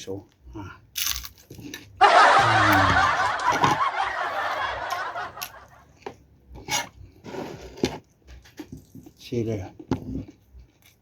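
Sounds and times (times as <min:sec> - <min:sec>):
burst of laughter: 0:02.0 - 0:05.8.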